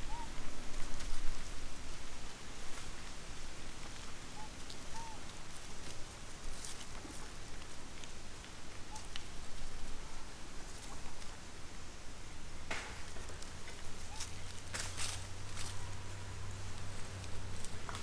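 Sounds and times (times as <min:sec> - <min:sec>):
outdoor background hiss: 0:00.0 - 0:18.0
light clicks and rustles: 0:12.7 - 0:18.0.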